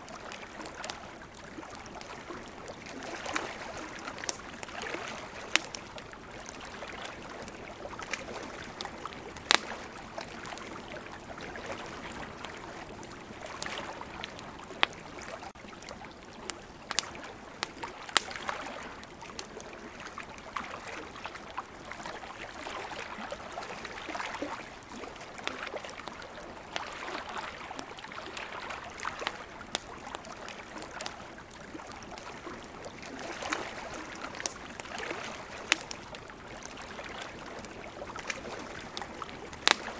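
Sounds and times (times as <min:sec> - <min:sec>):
campfire crackling: 0:00.0 - 0:39.9
sea waves: 0:00.0 - 0:39.9
sharp pops of fire: 0:09.4 - 0:09.8, 0:16.9 - 0:18.4, 0:35.6 - 0:36.0, 0:38.2 - 0:39.9.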